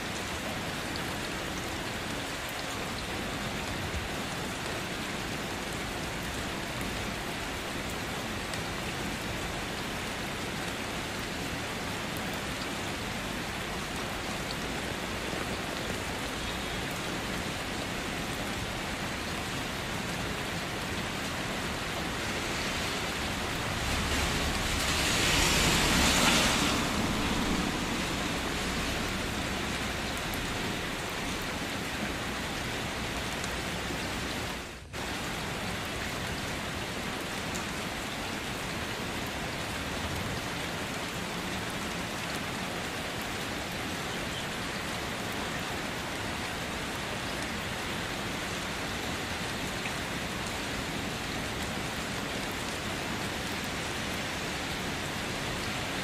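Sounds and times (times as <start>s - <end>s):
steady rain on street: 0.0s - 56.0s
rush of noise: 22.0s - 31.6s.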